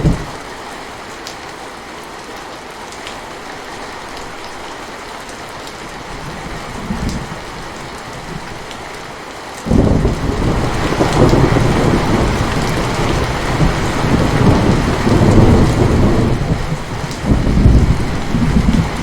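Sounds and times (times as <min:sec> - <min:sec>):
rolling thunder: 0:00.0 - 0:00.4, 0:09.7 - 0:19.0
steady rain: 0:00.0 - 0:19.0.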